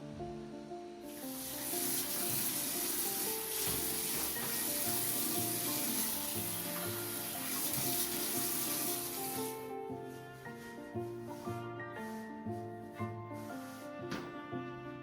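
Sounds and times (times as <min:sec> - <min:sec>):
background music: 0:00.0 - 0:15.0
water running from tap: 0:01.1 - 0:09.7.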